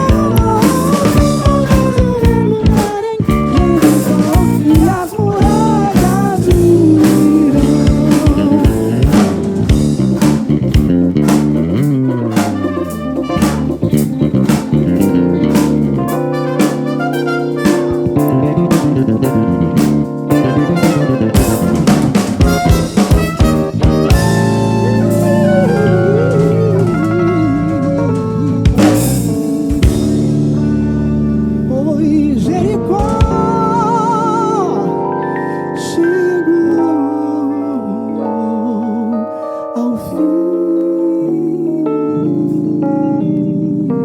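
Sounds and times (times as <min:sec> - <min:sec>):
drum kit beat: 0:00.0 - 0:31.8, 0:32.8 - 0:34.8
bass guitar: 0:00.0 - 0:39.2, 0:42.0 - 0:44.0
electric guitar: 0:00.0 - 0:44.0.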